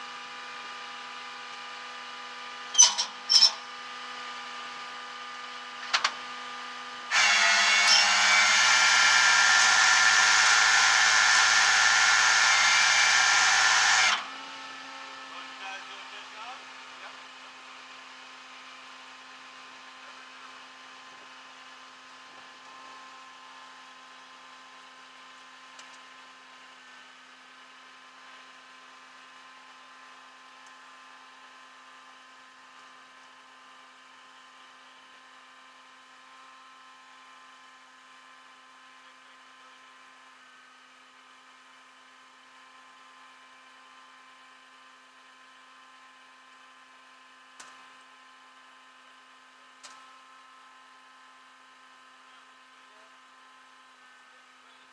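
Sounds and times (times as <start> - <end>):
faint mechanical hum: 14.0 - 54.9.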